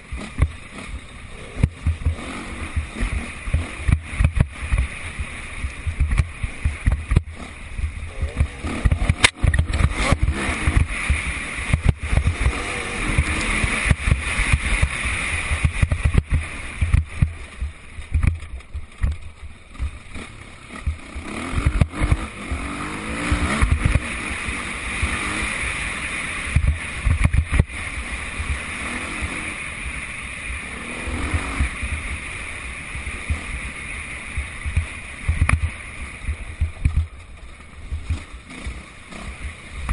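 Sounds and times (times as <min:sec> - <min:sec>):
dirt bike engines revving: 0:00.0 - 0:39.9
low thumps on microphone: 0:01.5 - 0:04.9, 0:05.8 - 0:20.0, 0:20.8 - 0:21.0, 0:26.5 - 0:27.7, 0:34.4 - 0:38.3.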